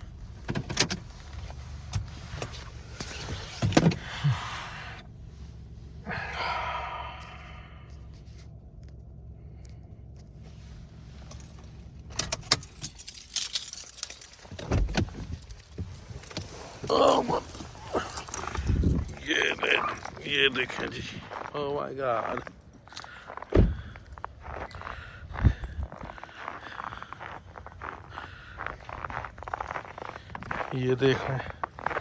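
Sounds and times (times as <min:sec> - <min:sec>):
car engine humming: 0:00.0 - 0:32.0
keys jangling: 0:11.2 - 0:20.4.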